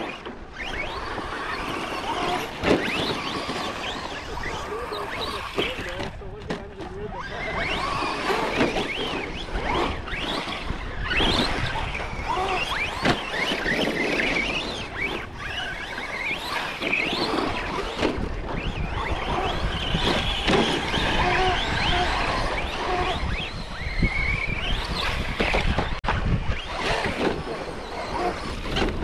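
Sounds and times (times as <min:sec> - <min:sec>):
electric motors whining: 0:00.0 - 0:29.0
tyres churning dirt: 0:00.0 - 0:29.0.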